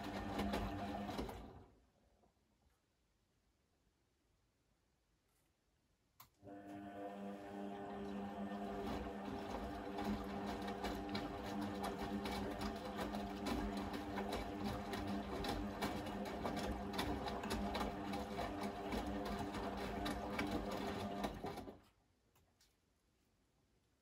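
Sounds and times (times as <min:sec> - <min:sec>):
washing machine running: 0:00.0 - 0:01.8, 0:06.4 - 0:21.8.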